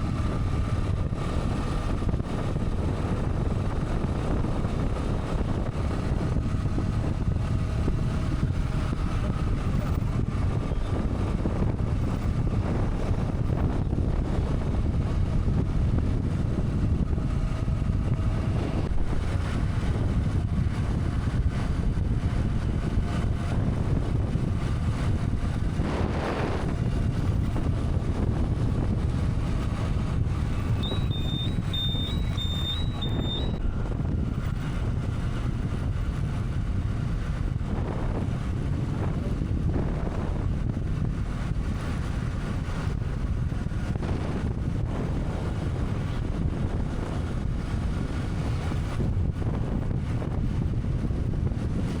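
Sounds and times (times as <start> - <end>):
motorcycle engine: 0.0 - 52.0
wind buffeting microphone: 0.0 - 52.0
high beeps: 30.8 - 33.6.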